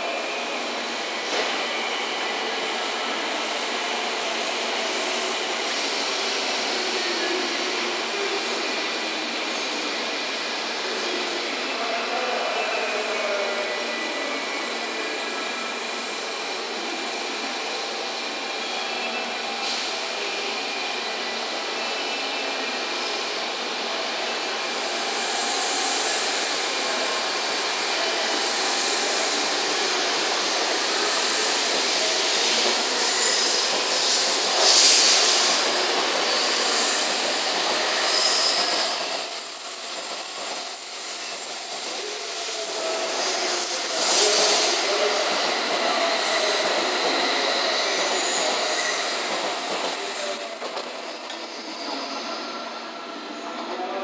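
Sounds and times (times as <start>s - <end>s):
train running noise: 24.1s - 54.0s.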